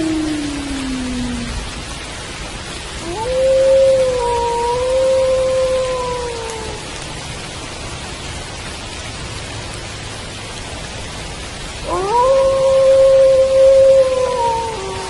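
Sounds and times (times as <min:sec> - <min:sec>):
wolf howling: 0:00.0 - 0:01.7, 0:03.0 - 0:06.9, 0:11.8 - 0:15.0
steady rain: 0:00.0 - 0:15.0.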